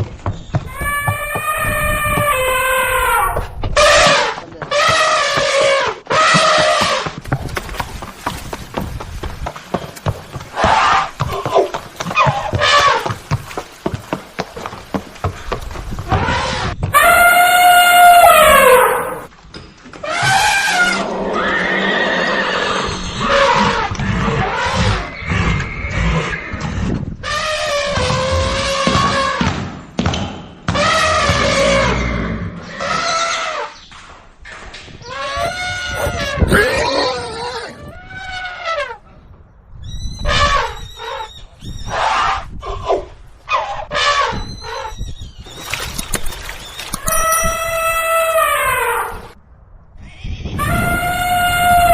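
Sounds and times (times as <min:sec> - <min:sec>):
horse whinnying: 0:00.7 - 0:07.0, 0:16.1 - 0:19.3, 0:20.0 - 0:29.4, 0:30.8 - 0:33.8, 0:35.0 - 0:39.0, 0:46.9 - 0:49.4, 0:50.1 - 0:51.9.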